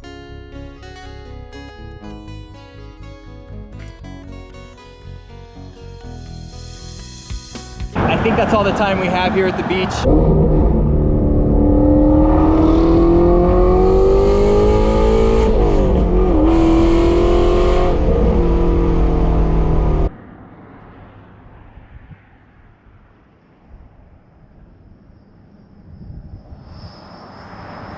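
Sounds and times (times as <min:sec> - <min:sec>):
faint wind and road noise: 0:07.9 - 0:27.9
car engine accelerating loudly: 0:08.0 - 0:20.1.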